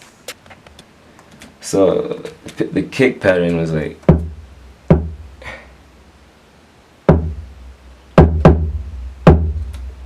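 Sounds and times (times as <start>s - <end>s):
kick drum with deep bass boom: 4.1s - 5.3s, 7.1s - 7.5s, 8.2s - 9.7s.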